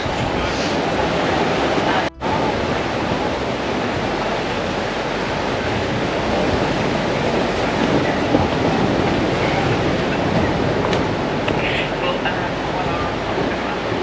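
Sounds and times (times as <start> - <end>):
surf rushing: 0.0 - 14.0
wind: 0.0 - 14.0.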